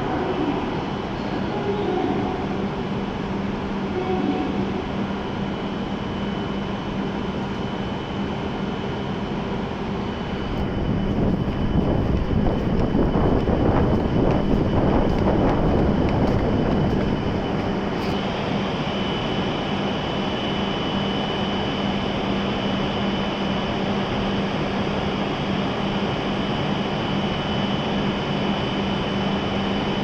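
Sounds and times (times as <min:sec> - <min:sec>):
train equipment hum: 0:00.0 - 0:20.3.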